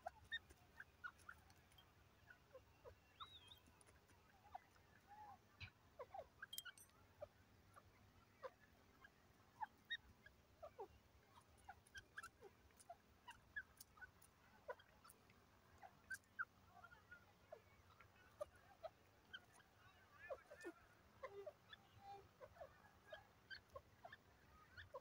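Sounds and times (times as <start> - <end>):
birds chirping softly: 0.0 - 25.0
faint clicks: 11.8 - 16.3.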